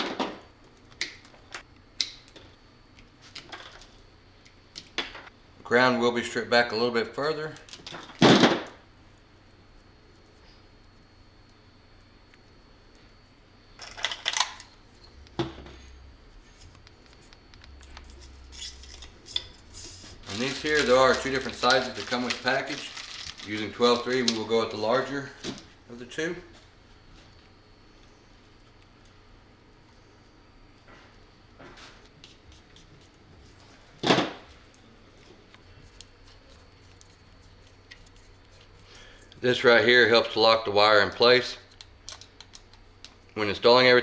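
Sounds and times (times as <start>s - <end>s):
faint rustles of small parts: 15.8s - 24.8s.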